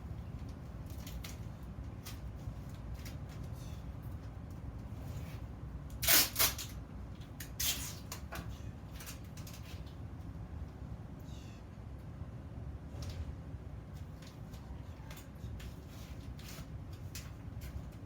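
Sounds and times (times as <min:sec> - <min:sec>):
steady low hum: 0:00.0 - 0:06.0.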